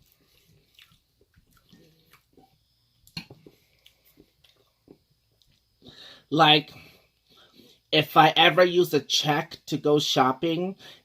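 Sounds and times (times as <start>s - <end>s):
person chewing food: 0.0s - 5.9s.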